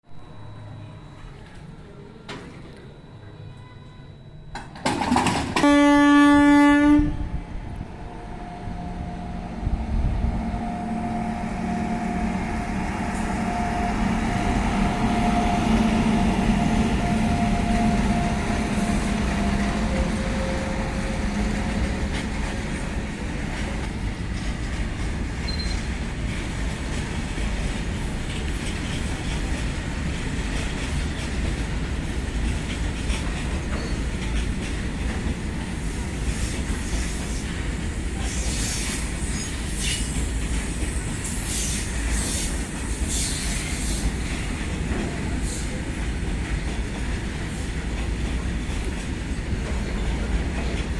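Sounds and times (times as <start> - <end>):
freight train rumbling past: 4.5 - 50.9
locomotive horn: 5.5 - 7.4.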